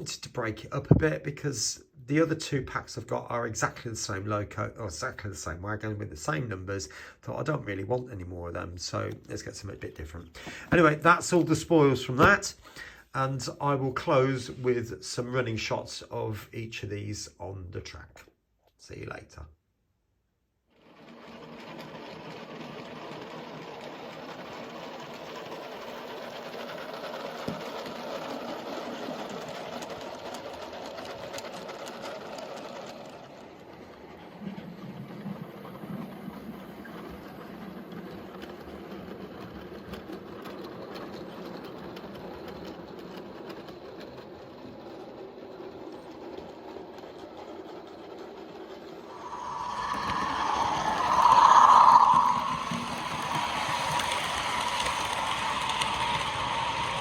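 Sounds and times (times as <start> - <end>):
model train electric motor running: 20.8 - 34.3, 49.3 - 57.0
wheels rattling along rails: 20.8 - 57.0.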